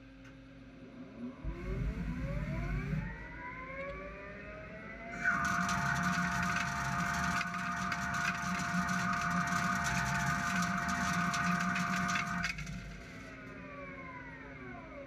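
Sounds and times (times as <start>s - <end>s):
machine winding down whine: 0.9s - 15.0s
lathe whining and crackling: 5.1s - 14.4s.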